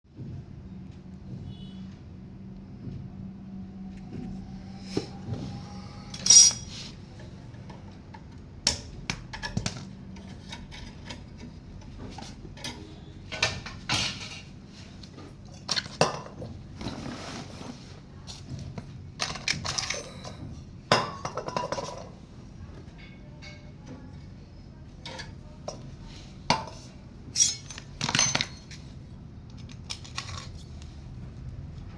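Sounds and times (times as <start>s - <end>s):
low steady hum: 0.1s - 31.9s
metal tools clinking: 6.0s - 7.0s, 19.2s - 20.5s, 27.3s - 28.8s.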